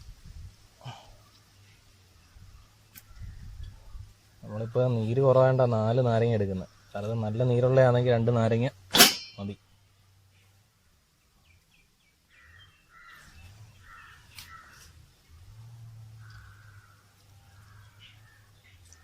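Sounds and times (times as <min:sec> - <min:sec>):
crows cawing faintly: 0:00.8 - 0:05.6, 0:06.5 - 0:07.8, 0:12.3 - 0:15.0, 0:15.6 - 0:19.0.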